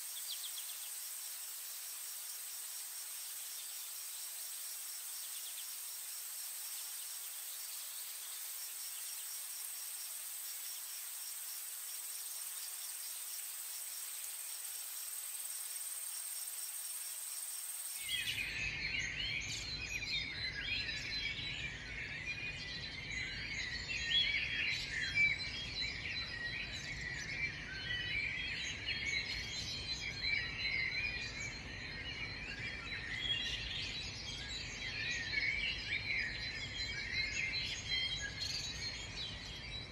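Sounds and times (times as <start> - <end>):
hiss: 0.0 - 18.4
insects droning: 0.0 - 19.7
chorus of birds chirping: 0.0 - 39.9.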